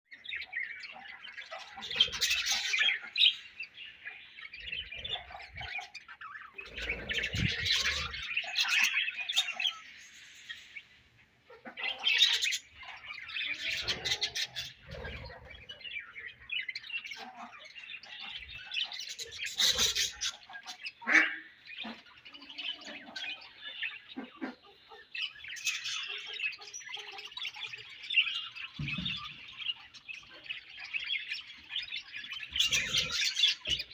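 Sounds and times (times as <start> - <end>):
budgerigars chirping and chattering: 0.1 - 33.9
squawky bird calls: 11.5 - 33.9.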